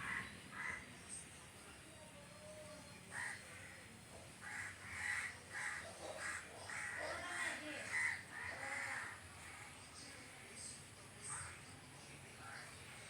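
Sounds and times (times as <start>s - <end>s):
crow cawing: 3.1s - 3.8s, 4.4s - 9.2s.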